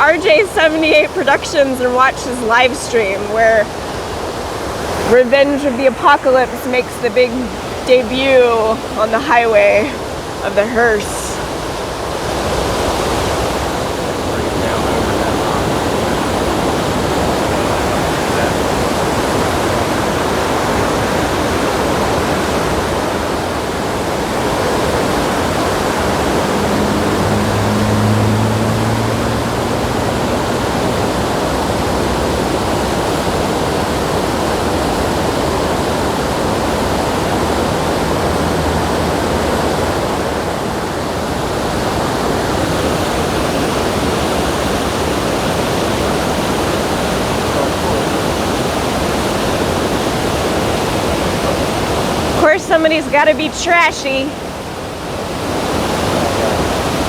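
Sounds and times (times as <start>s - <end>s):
waterfall roaring: 0.0s - 57.0s
low hum: 24.2s - 32.4s.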